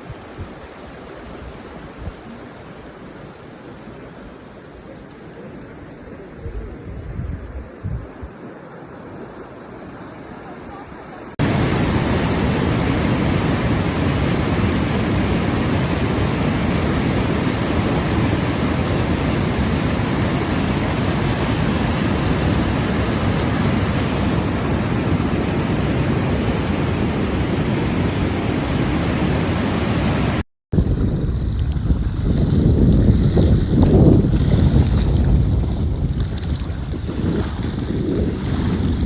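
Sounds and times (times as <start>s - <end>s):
loud steady rushing noise: 11.4s - 30.4s.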